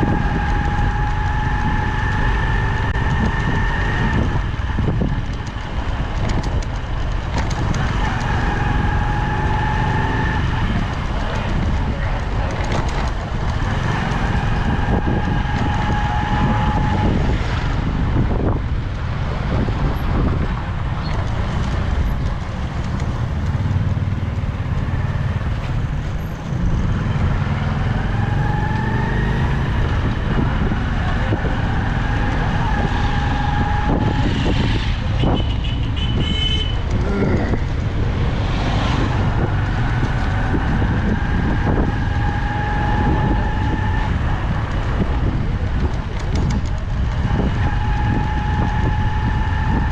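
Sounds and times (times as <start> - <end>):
motorcycle engine running: 0.0 - 49.9
wind rumble on microphone: 0.0 - 49.9.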